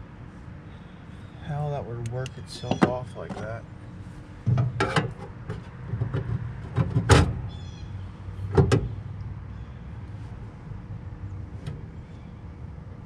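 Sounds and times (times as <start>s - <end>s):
metal knocks and rattles: 4.4s - 7.4s.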